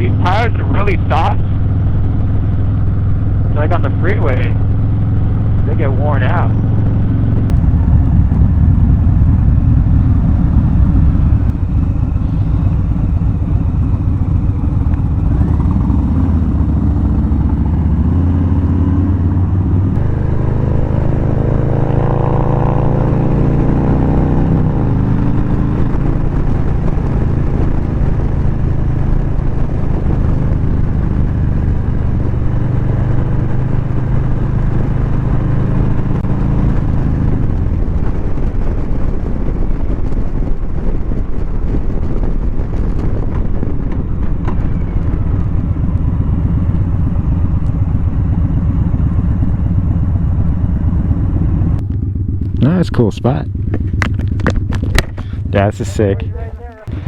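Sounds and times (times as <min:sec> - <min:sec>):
faint whine: 0:00.0 - 0:23.6
motorcycle engine running: 0:00.0 - 0:57.0
road and wind noise: 0:00.0 - 0:57.0.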